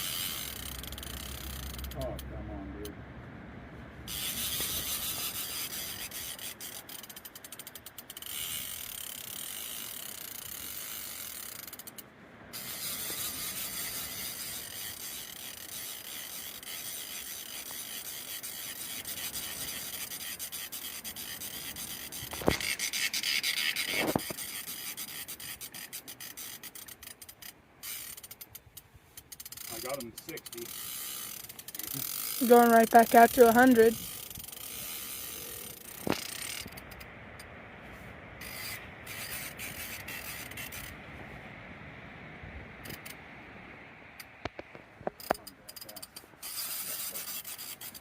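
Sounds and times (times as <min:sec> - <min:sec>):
fishing reel clicking fast: 0:00.0 - 0:02.3, 0:04.1 - 0:37.1, 0:38.4 - 0:41.0, 0:45.2 - 0:48.0.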